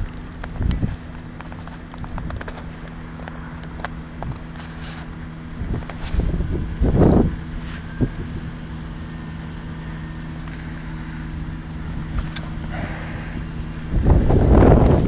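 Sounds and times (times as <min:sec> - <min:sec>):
low engine hum: 0:00.0 - 0:15.0
wind gust on microphone: 0:05.6 - 0:08.5, 0:11.9 - 0:15.0.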